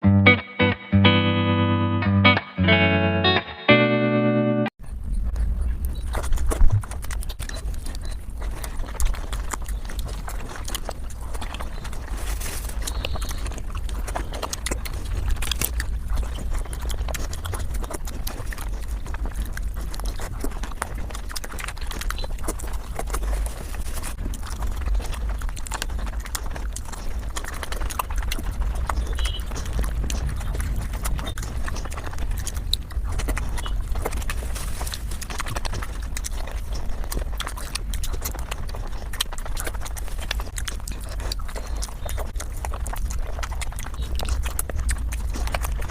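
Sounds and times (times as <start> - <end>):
fast chewing and mouth clicks: 4.8 - 45.9
low rumble: 23.8 - 37.2.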